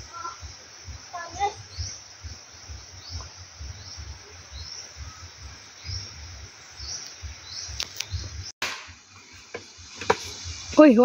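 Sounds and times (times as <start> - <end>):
bird chirping: 0.0 - 8.5.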